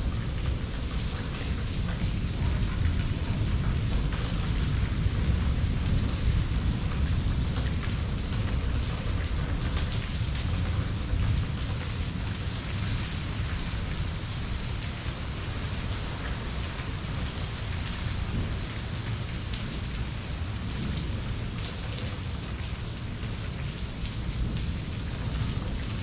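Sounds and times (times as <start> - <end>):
rain on hard surfaces: 0.0 - 26.0.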